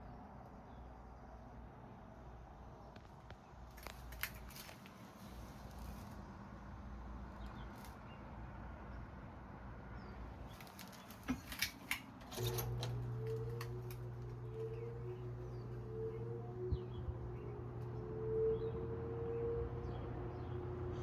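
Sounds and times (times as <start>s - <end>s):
electric fan motor humming: 10.5s - 21.0s
box fan clicks and knocks: 10.6s - 15.6s.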